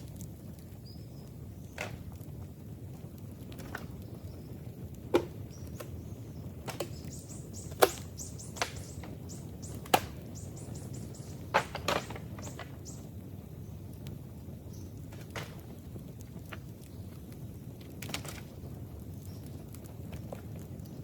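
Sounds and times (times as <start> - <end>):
bamboo cracking and knocking: 1.6 - 2.3, 3.4 - 4.1, 4.9 - 10.5, 11.3 - 12.8, 15.0 - 18.6.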